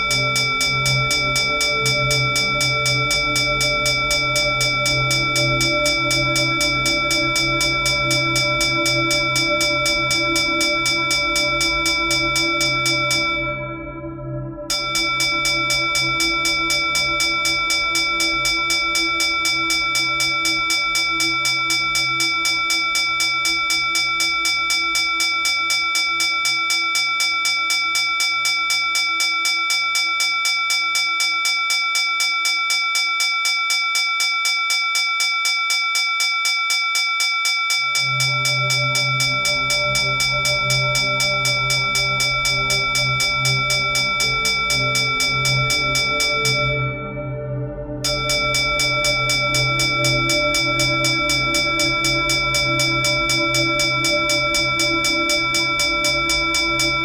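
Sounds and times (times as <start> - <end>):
bell rung in rapid strikes: 0.0 - 13.9, 14.7 - 47.3, 48.0 - 57.0
low drone: 38.0 - 57.0.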